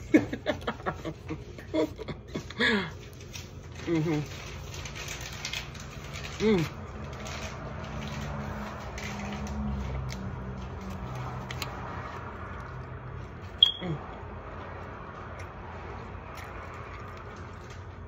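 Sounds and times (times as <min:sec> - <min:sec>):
low hummed voice: 0:02.4 - 0:04.8, 0:06.0 - 0:07.1, 0:13.8 - 0:14.5
wet chewing and lip smacking: 0:09.8 - 0:13.8, 0:14.8 - 0:18.0.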